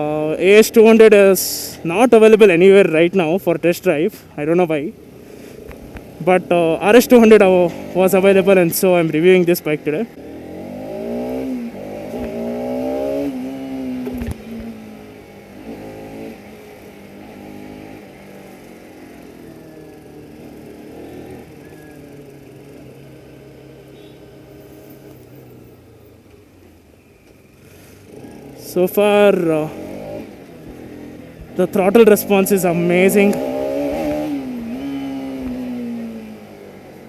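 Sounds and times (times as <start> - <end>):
motorcycle engine accelerating: 4.5 - 26.8, 27.5 - 37.0.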